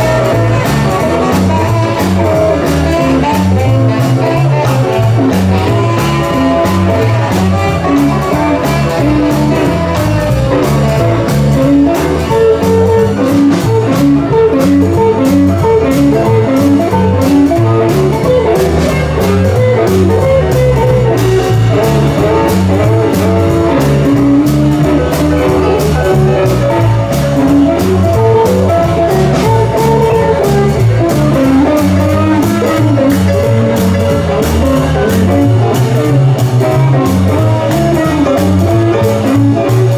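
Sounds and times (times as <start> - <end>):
blues band playing: 0.0 - 39.9
lead guitar: 0.0 - 39.9.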